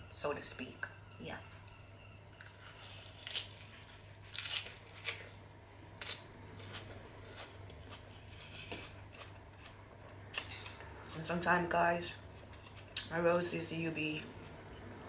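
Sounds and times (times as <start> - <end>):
crisp lettuce crunching: 2.4 - 5.4.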